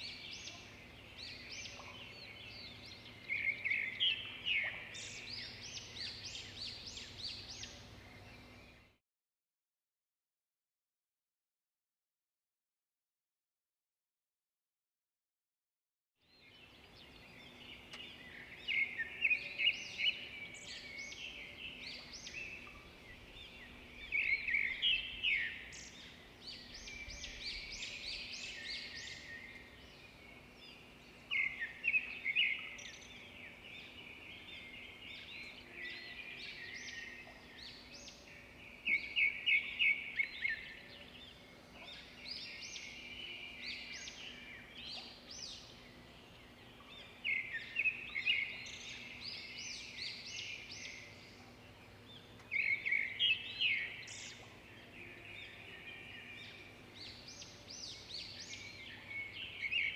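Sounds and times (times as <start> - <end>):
birds chirping and trilling: 0.0 - 9.0, 16.3 - 59.9
faint steady hum: 16.7 - 59.9.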